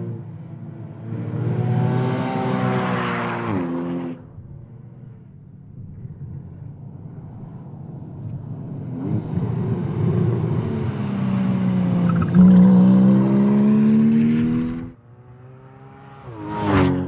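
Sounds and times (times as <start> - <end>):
car passing close by: 1.2 - 4.3, 10.0 - 17.0.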